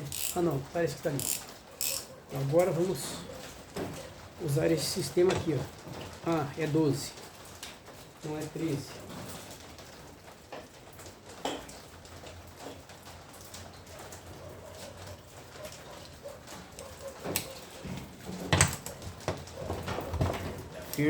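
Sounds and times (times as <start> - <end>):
wrench clicking on bolts: 0.0 - 0.4, 1.2 - 2.1.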